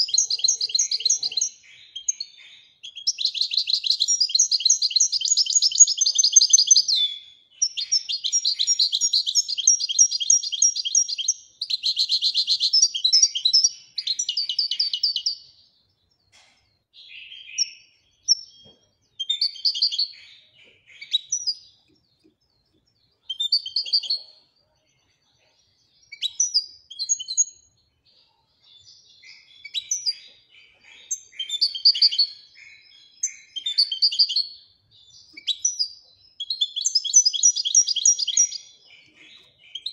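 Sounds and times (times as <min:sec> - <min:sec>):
goldfinch singing: 0:00.0 - 0:15.5, 0:17.0 - 0:24.4, 0:25.8 - 0:27.7, 0:28.7 - 0:39.9.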